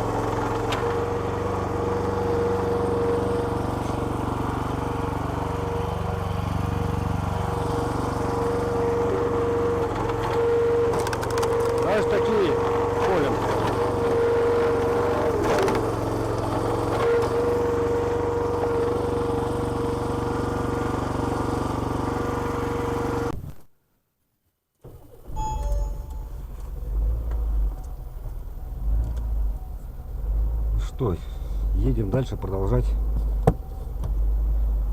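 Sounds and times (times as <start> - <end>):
petrol engine with hydraulic whine: 0.0 - 23.4, 25.0 - 34.9
car cabin rumble: 7.5 - 19.0, 24.8 - 34.9.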